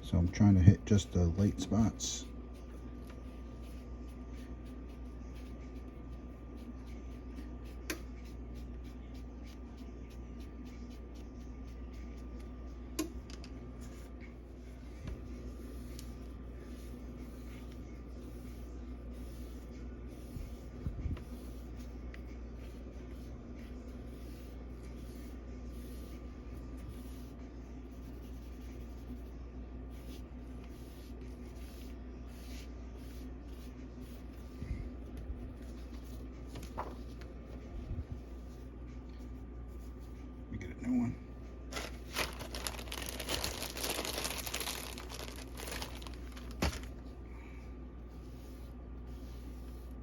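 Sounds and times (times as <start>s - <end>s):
steady hum: 0.0s - 50.0s
hand rubbing paper cover: 35.6s - 37.3s, 41.7s - 47.1s.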